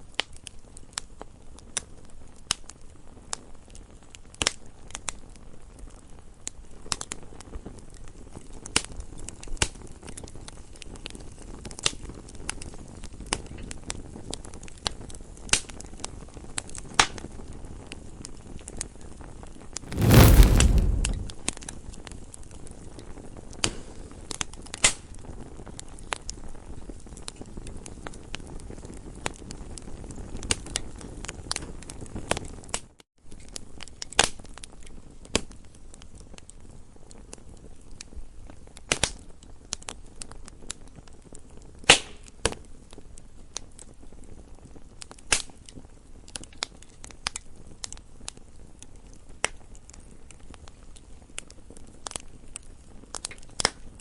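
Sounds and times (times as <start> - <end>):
campfire crackling: 19.9 - 21.3.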